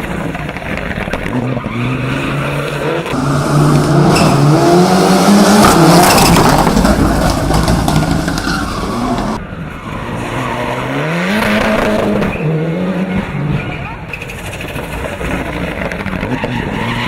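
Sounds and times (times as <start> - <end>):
race car engine revving: 0.2 - 17.0
loud rushing noise: 3.1 - 9.4.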